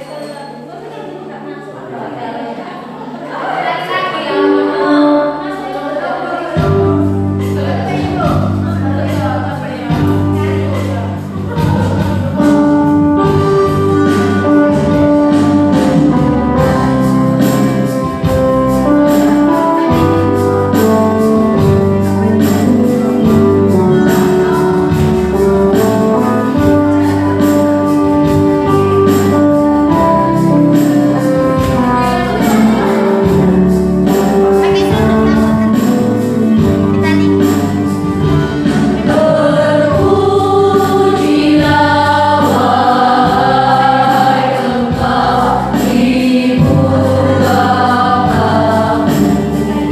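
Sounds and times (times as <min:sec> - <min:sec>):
choir singing: 0:00.0 - 0:20.7, 0:28.2 - 0:49.9
instrumental accompaniment with beat: 0:04.4 - 0:49.9.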